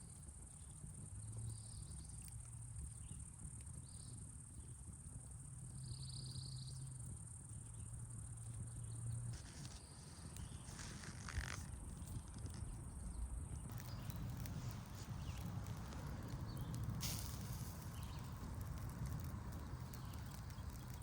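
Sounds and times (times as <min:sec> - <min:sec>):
insects chirring: 0:05.8 - 0:21.0
rustling: 0:09.3 - 0:12.8.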